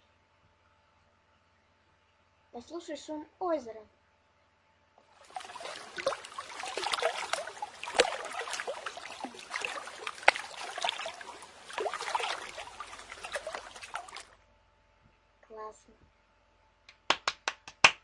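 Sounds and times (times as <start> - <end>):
water lapping and splashing: 5.1 - 14.4.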